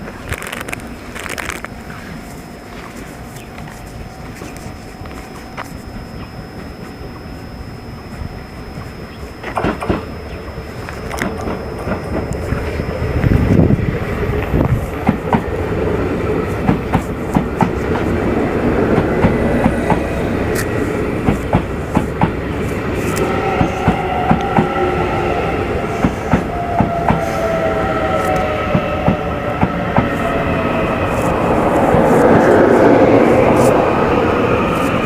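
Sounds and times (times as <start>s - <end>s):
multi-tone whine: 0.0s - 35.0s
train wheels clacking on rails: 14.3s - 25.1s, 25.8s - 30.5s.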